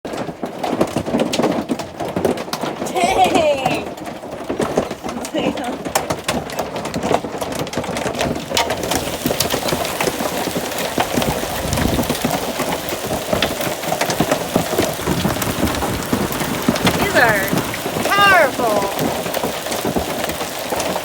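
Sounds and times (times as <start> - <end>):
hailstones clattering: 0.1 - 21.0.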